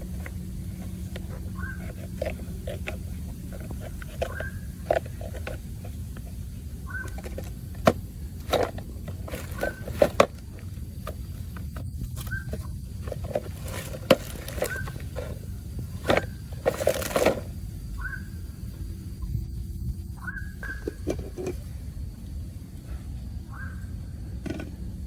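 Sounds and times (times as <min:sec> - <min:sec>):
low steady hum: 0:00.0 - 0:25.0
scattered clicks and knocks: 0:07.0 - 0:17.5.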